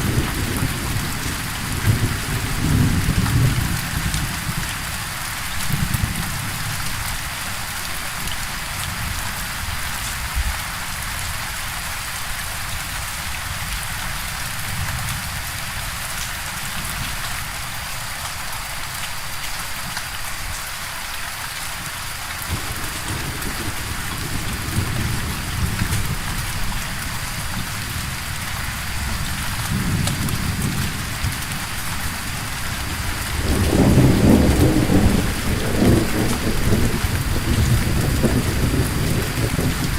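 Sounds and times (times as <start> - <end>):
low rolling thunder: 0.0 - 4.6, 22.5 - 28.2, 28.8 - 39.9
heavy rain: 0.0 - 39.9.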